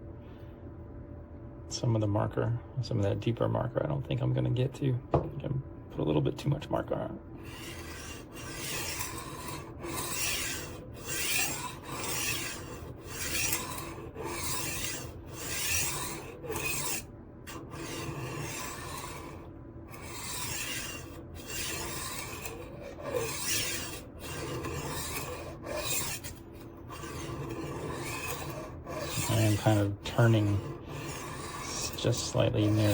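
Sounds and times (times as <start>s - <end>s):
knife sharpener grinding blade: 7.4s - 32.9s.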